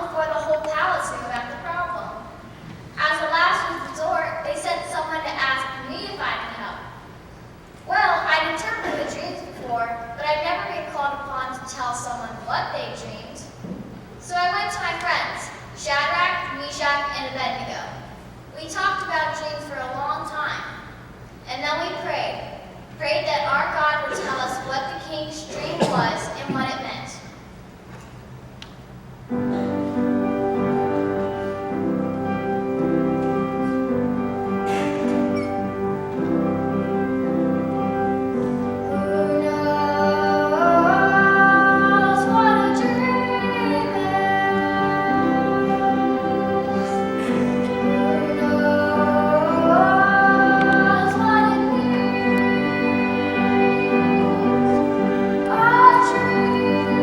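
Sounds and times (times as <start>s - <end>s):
instrumental accompaniment: 28.9s - 57.0s
keyboard playing held chords: 29.3s - 57.0s
children's choir singing: 38.8s - 57.0s.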